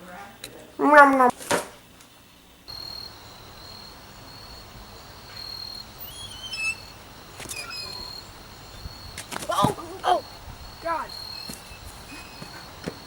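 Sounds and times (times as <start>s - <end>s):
insects trilling: 0.0s - 13.0s
bird chirps: 2.7s - 13.0s.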